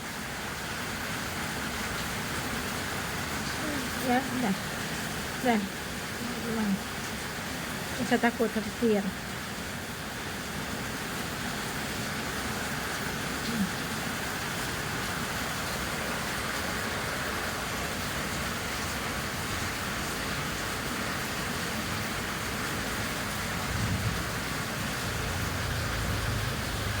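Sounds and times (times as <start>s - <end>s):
heavy rain: 0.0s - 27.0s
low rumble of thunder: 23.5s - 27.0s.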